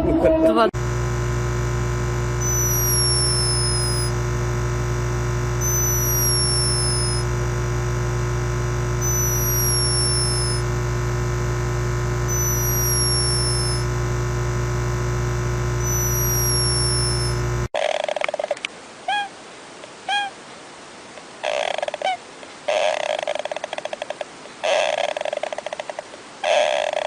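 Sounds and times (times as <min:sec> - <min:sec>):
electronic hum: 0:00.8 - 0:17.7
high falling chirp: 0:02.4 - 0:04.2, 0:05.6 - 0:07.3, 0:09.0 - 0:10.7, 0:12.3 - 0:13.9, 0:15.8 - 0:17.5.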